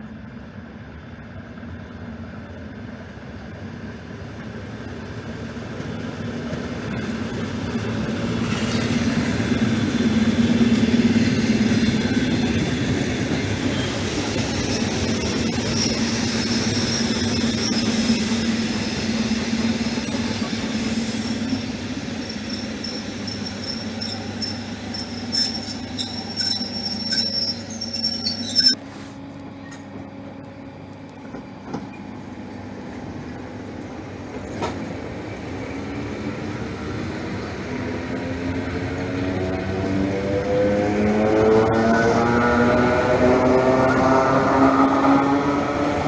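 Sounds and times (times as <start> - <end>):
train wheels squealing: 6.8 - 29.9.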